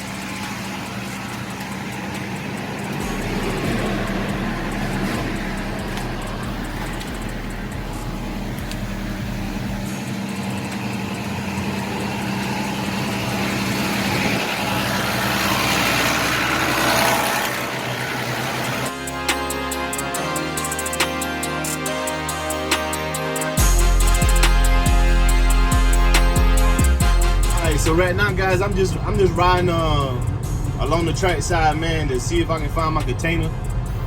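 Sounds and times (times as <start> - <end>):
rushing noise: 0.0 - 19.3
diesel truck engine running: 0.0 - 34.0.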